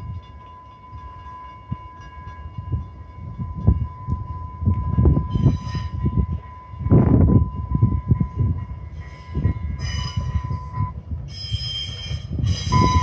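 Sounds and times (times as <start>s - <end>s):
train rumbling on the track: 0.0s - 13.0s.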